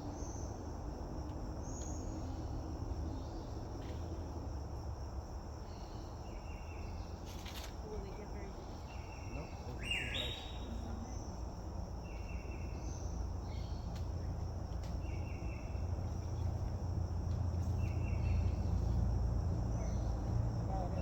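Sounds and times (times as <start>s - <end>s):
insect buzzy call: 5.6s - 14.4s
insect high trill: 5.6s - 14.4s.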